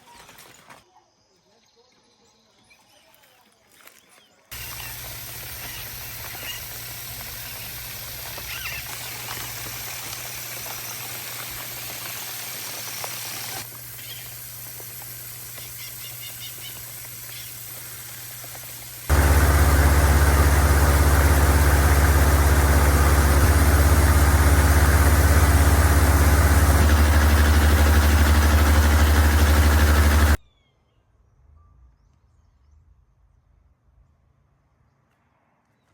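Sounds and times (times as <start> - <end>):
outdoor ambience: 2.2 - 30.4
low mechanical hum: 4.5 - 30.4.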